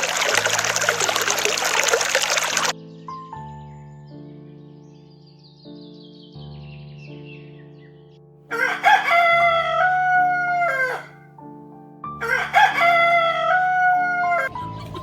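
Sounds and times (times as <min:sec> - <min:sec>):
soft background music: 0:02.7 - 0:15.0
rooster crowing: 0:08.5 - 0:11.2, 0:12.2 - 0:14.5.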